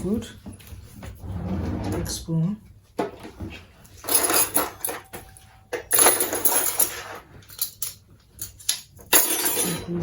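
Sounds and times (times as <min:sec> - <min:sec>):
spoon and dishes clinking: 0:04.1 - 0:10.0.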